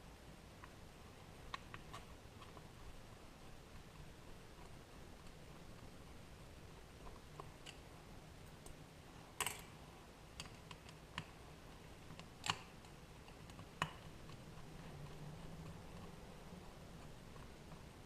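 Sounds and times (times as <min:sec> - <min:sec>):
faint low hum: 0:00.0 - 0:18.0
clicks of metal parts and tools: 0:09.4 - 0:09.8.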